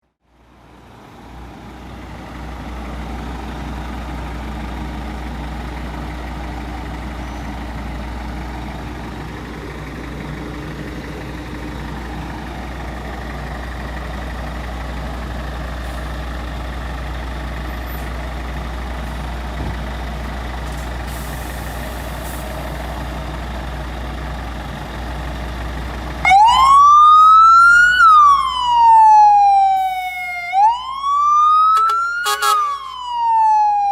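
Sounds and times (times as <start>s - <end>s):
diesel engine humming: 0.0s - 33.9s
siren wailing: 26.2s - 33.9s.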